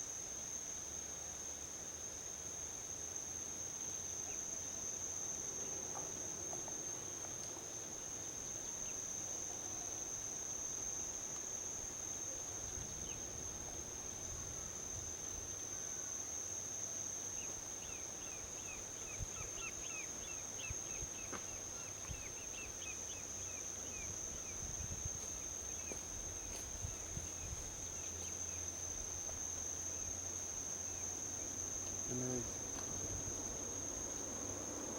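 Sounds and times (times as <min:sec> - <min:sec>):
insects droning: 0:00.0 - 0:34.9
quick insect chirps: 0:15.2 - 0:34.9.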